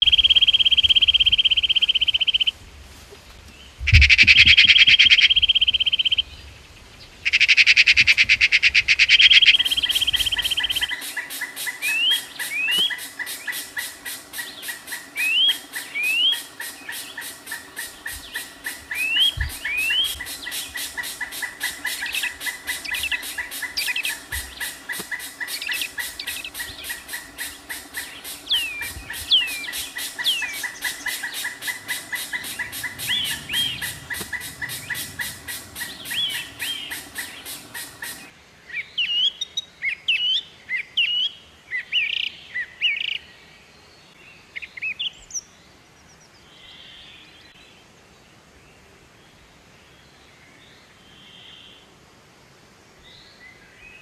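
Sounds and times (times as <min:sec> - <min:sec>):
birds chirping: 0:03.6 - 0:38.3
high-pitched pulsing: 0:09.4 - 0:38.3.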